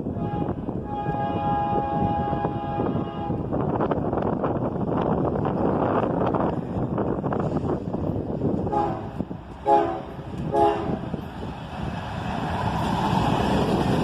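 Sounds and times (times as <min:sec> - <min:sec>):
locomotive horn blasts: 0:00.0 - 0:03.5, 0:08.7 - 0:11.0
train rumble: 0:00.0 - 0:14.0
wind on microphone: 0:00.0 - 0:14.0.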